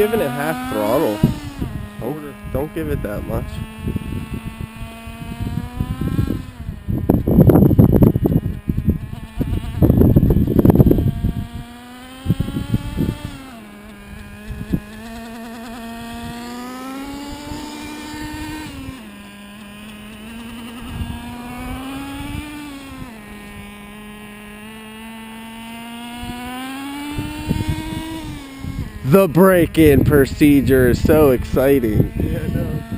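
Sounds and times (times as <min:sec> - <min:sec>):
rc truck engine buzzing: 0:00.0 - 0:32.9.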